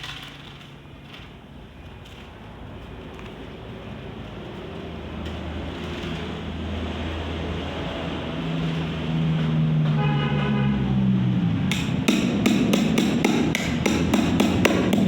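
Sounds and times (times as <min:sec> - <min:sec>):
vehicle engine approaching: 0:02.4 - 0:12.4
short horn toot: 0:09.9 - 0:10.9.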